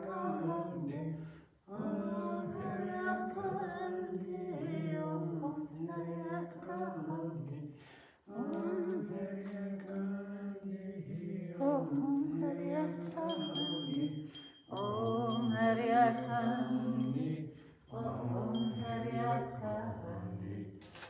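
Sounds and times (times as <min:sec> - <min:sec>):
voices singing a chant: 0:00.0 - 0:21.0
small hand bell ringing: 0:13.3 - 0:19.0.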